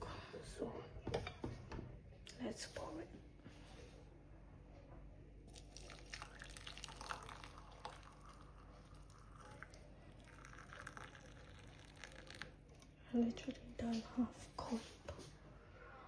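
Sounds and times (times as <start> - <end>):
tea trickling into cup: 5.5 - 12.9.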